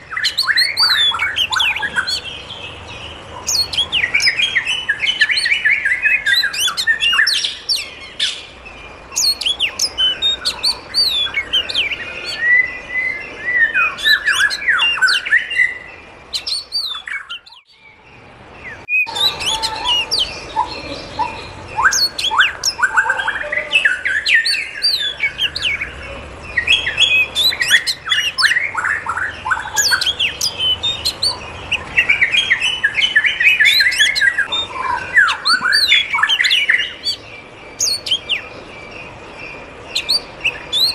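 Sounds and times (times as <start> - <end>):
birds chirping and whistling: 0.0 - 40.9
bird squawks: 9.2 - 12.7, 18.9 - 37.2.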